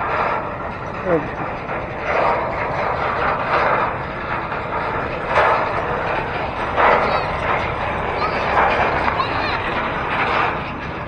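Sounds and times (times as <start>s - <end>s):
wind buffeting microphone: 0.0s - 11.0s
road and traffic noise: 5.3s - 11.0s.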